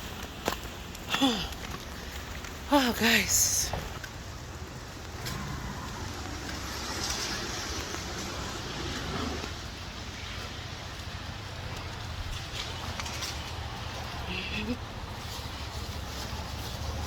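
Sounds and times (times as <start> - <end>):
car engines: 0.0 - 17.0
rain falling: 0.0 - 17.0
tyre hiss on wet road: 4.2 - 11.7.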